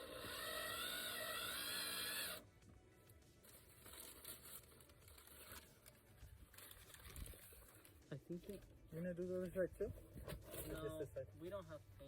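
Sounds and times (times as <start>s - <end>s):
background music: 0.0s - 12.0s
faint rustling and handling: 2.7s - 12.0s.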